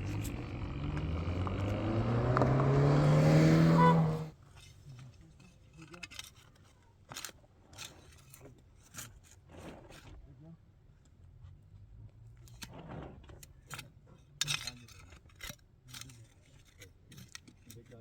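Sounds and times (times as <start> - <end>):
motor running and rising: 0.0 - 4.3.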